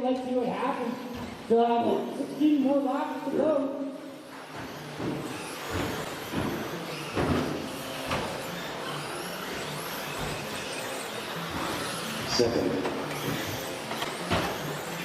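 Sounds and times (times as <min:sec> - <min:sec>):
rc truck motor whine: 0:04.0 - 0:15.0.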